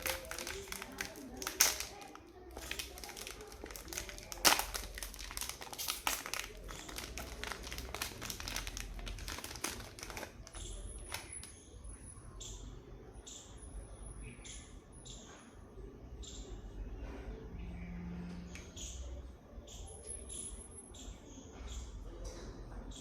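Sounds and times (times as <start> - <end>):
chocolate wrapper crinkling: 0.0 - 11.5.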